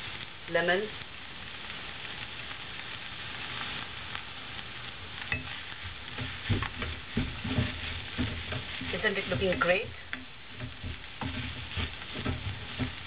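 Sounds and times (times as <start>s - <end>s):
food sizzling in a pan: 0.0s - 13.0s
wooden spatula scraping a pan: 5.0s - 13.0s.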